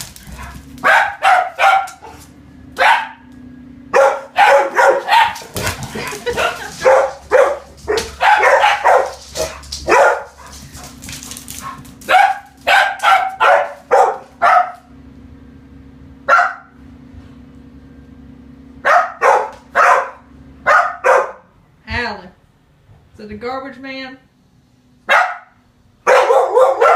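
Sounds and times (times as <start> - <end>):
dogs barking: 0.1 - 15.0, 16.2 - 16.8, 18.8 - 21.5, 25.0 - 26.9.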